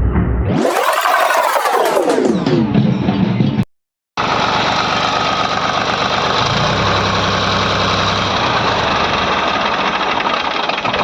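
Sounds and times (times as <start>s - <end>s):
tractor diesel engine clattering: 4.2s - 11.0s.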